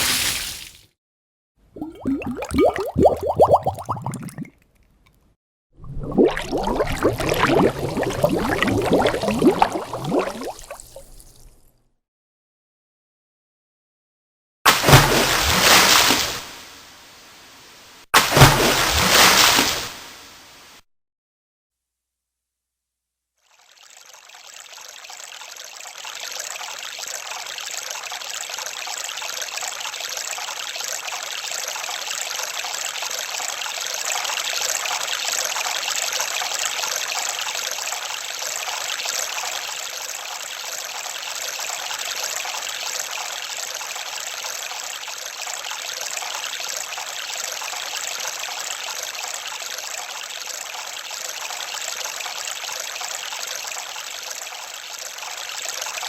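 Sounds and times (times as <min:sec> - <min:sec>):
water trickling: 0:01.8 - 0:04.9, 0:05.8 - 0:11.7.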